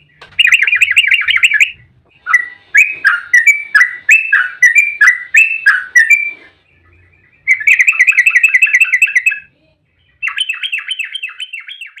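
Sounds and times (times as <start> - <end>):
bulbul song with rattling trills: 0.0 - 9.5.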